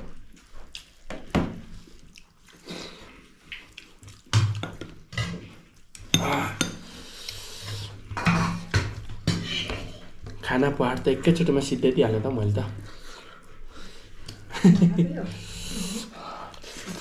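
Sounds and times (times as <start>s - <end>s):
chewing: 0.0s - 6.1s
dishes and cutlery clinking: 4.4s - 6.9s, 8.1s - 10.0s.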